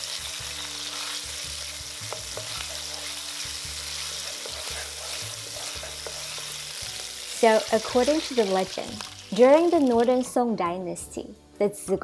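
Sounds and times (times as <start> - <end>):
hot oil sizzling in a pan: 0.0 - 10.4
wooden spoon scraping a pan: 2.0 - 6.8.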